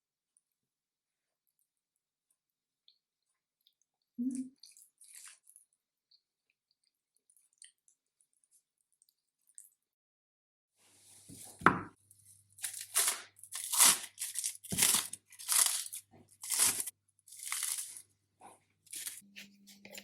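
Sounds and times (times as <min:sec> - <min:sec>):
rasping tearing strokes: 0:12.6 - 0:18.0.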